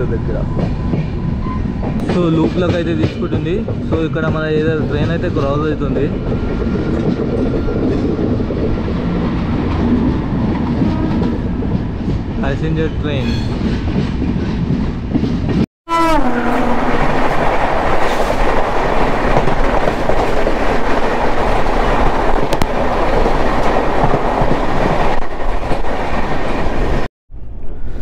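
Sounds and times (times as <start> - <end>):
rush of train wheels and air: 0.0 - 28.0
train horn with falling pitch: 15.9 - 17.1.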